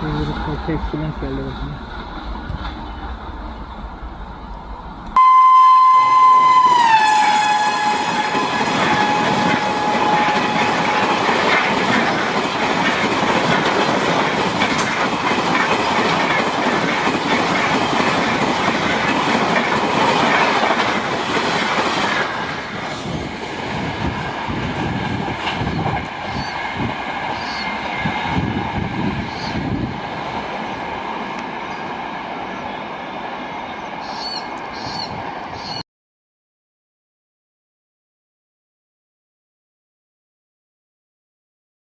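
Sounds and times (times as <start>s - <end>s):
train wheels rumbling on rails: 0.0s - 5.2s, 6.4s - 35.8s
train horn: 5.2s - 11.1s.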